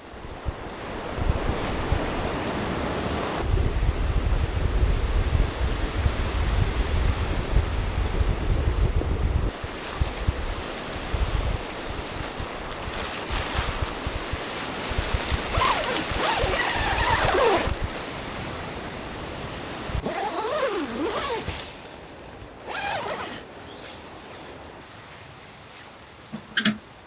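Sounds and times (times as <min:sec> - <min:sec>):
wind buffeting microphone: 0:00.2 - 0:21.5.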